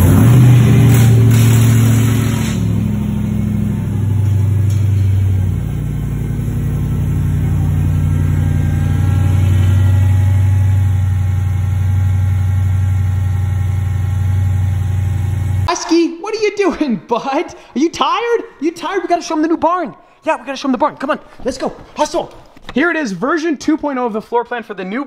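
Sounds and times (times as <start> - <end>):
car engine idling: 0.0 - 15.7.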